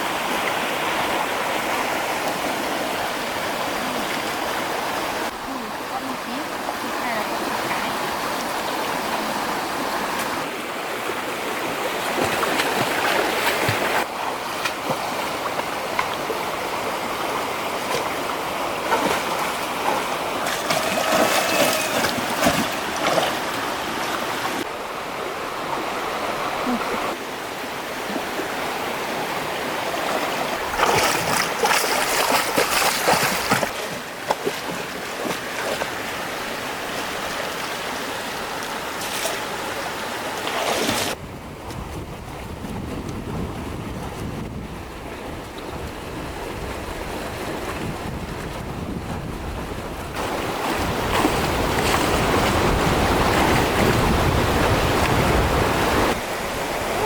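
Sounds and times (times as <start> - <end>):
water splashing: 0.0 - 24.7, 25.6 - 41.2, 50.1 - 57.0
stream water flowing: 0.0 - 43.5, 44.5 - 57.0.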